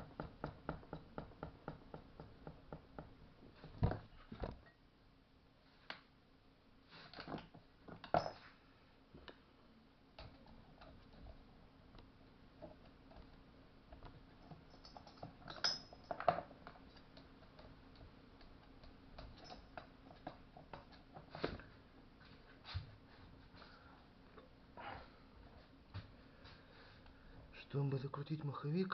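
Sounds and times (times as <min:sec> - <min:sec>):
tools and metal parts clicking: 0:14.4 - 0:17.7, 0:19.2 - 0:20.3.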